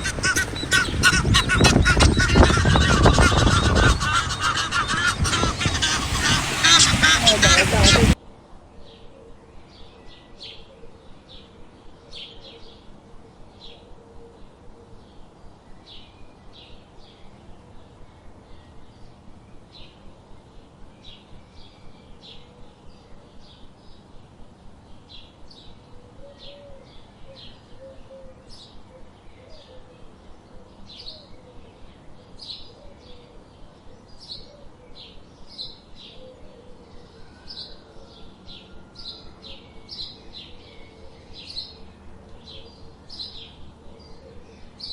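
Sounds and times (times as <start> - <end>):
small birds chirping: 0.0 - 8.2, 26.9 - 44.9.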